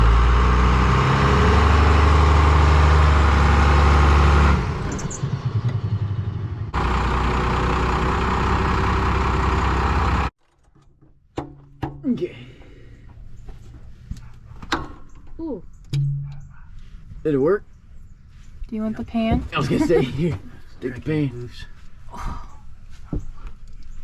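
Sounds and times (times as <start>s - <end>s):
diesel engine running: 0.0s - 10.3s.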